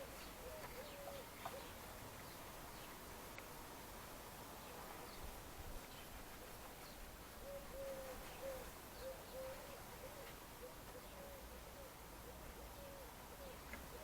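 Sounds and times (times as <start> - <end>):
low hooting bird calls: 0.0 - 1.8, 7.4 - 14.0.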